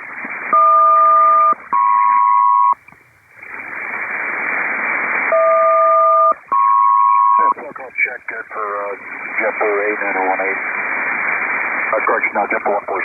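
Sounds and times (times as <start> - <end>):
radio static hiss: 1.9 - 6.5, 7.1 - 13.0
radio calling tones: 5.3 - 10.8, 11.7 - 13.0.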